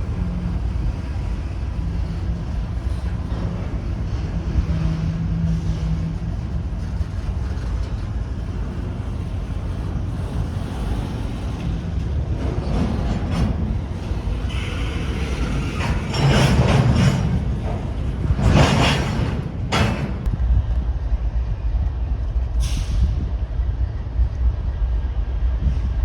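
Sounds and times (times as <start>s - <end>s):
wheels clattering over rails: 0.0s - 20.3s
train rumbling past: 0.0s - 26.0s.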